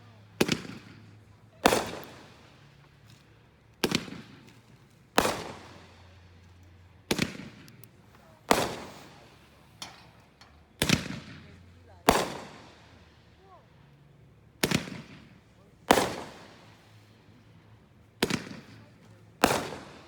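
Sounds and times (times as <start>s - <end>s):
fireworks bangs: 0.4s - 2.6s, 5.2s - 6.2s, 7.1s - 7.8s, 8.4s - 10.2s, 10.8s - 13.2s, 14.6s - 17.1s, 18.2s - 20.0s.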